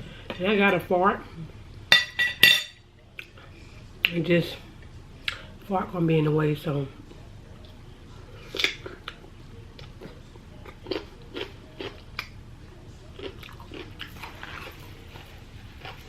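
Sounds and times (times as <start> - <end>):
person chewing food: 9.8 - 12.4, 13.0 - 16.0.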